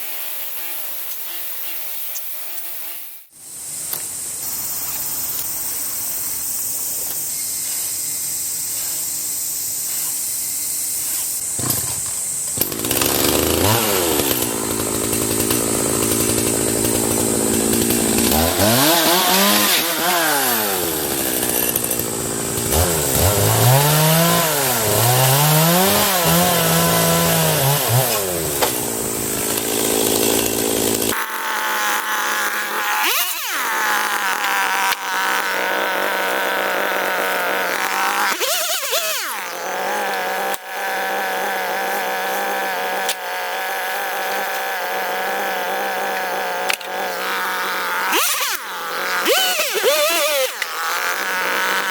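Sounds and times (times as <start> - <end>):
two-stroke cutting tool engine revving: 12.6 - 51.9.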